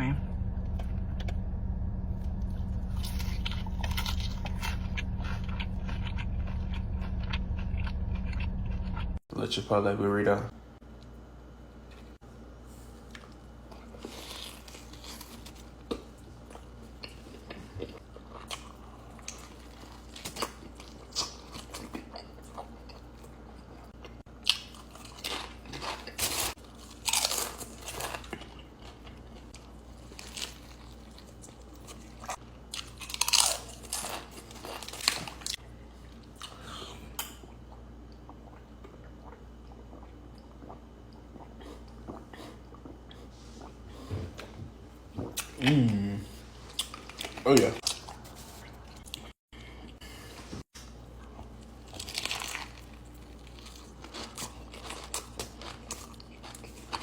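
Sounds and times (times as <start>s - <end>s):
biting and chewing food: 2.2s - 9.2s, 13.1s - 35.6s, 50.8s - 57.0s
food crunching and crackling: 2.4s - 9.2s, 13.0s - 43.8s, 46.6s - 49.4s, 50.8s - 57.0s.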